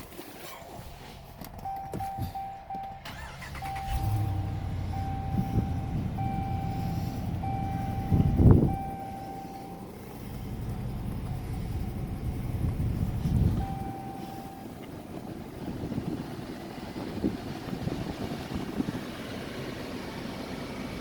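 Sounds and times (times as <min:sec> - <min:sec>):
engine idling rumble: 0:00.0 - 0:21.0
vehicle chime beeping: 0:01.6 - 0:14.8.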